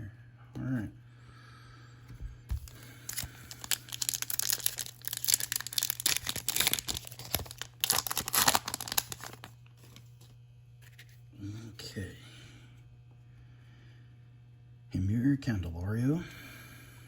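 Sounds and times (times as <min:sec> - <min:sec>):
packaging crinkling and tearing: 0:02.5 - 0:10.1.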